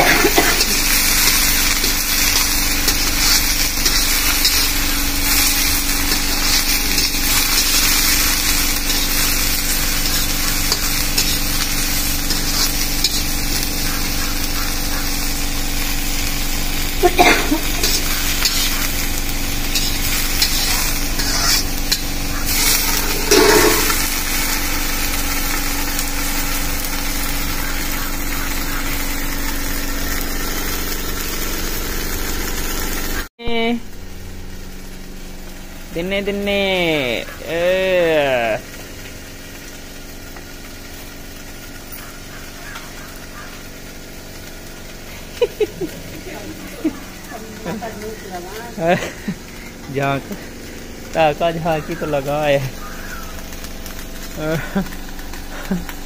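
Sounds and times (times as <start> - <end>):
food sizzling in a pan: 0.0 - 56.0
metal ladle stirring: 23.0 - 24.0.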